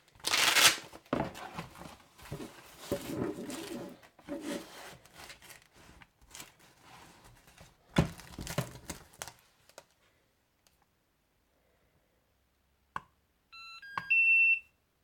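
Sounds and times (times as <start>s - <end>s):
rustling and crinkling: 0.0s - 10.8s.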